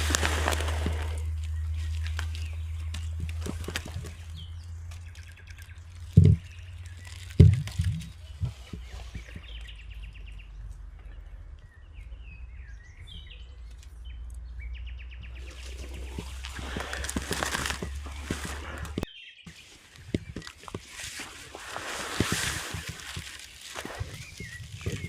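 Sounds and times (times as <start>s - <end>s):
birds chirping and calling: 0.0s - 25.0s
steady low rumble: 0.0s - 25.0s
dull thumps: 6.1s - 6.6s.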